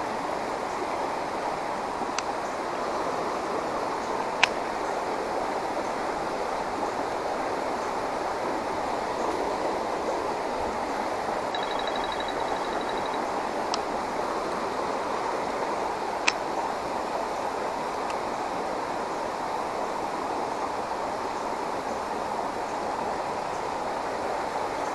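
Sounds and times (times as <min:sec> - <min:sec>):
flowing creek water: 0:00.0 - 0:24.9
sharp clicks: 0:11.6 - 0:13.9.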